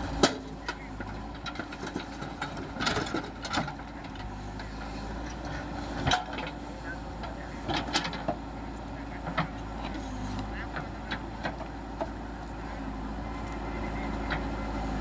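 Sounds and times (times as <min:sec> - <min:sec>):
diesel engine running: 0:00.0 - 0:15.0
knocks and rattles: 0:00.2 - 0:04.3.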